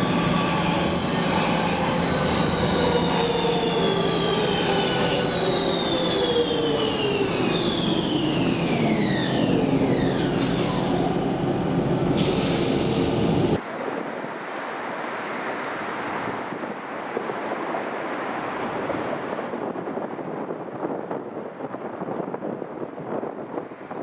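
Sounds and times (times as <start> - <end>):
electric train motor whine: 0.0 - 13.6
train rumble: 0.0 - 13.7.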